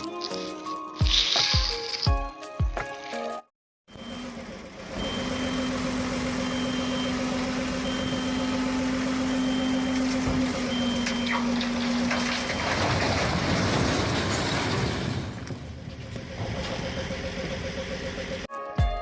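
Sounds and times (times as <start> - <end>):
reversing alarm beeps: 3.9 - 12.9
truck engine hum: 3.9 - 18.5
rough noisy rumble: 10.0 - 18.5.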